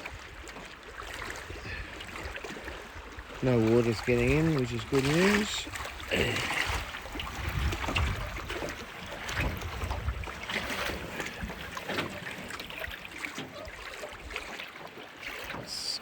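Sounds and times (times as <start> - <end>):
water slapping boat hull: 0.0 - 16.0
wind buffeting microphone: 1.2 - 13.0
boat creaks and knocks: 3.5 - 15.9.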